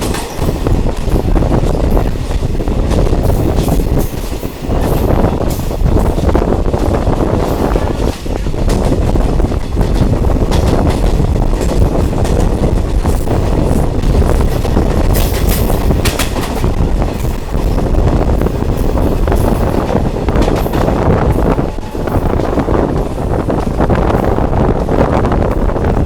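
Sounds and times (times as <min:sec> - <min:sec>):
train engine rumble: 0:00.0 - 0:26.0
wheels clattering on rails: 0:00.0 - 0:26.0.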